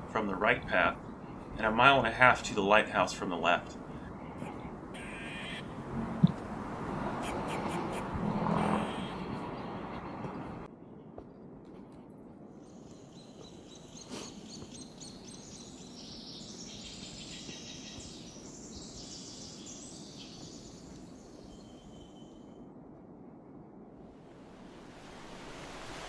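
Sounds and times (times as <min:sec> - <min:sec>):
small birds chirping: 0:12.6 - 0:22.4.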